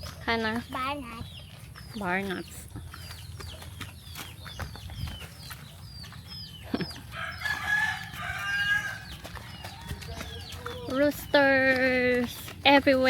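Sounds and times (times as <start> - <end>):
rooster crowing: 7.1 - 10.9.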